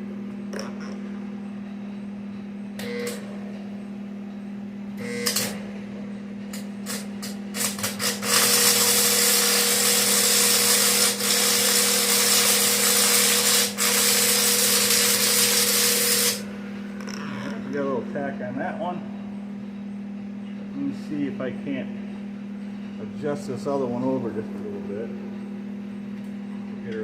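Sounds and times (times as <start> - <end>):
steady hum: 0.0 - 27.0
arc welder crackling: 5.0 - 5.6, 6.5 - 17.5.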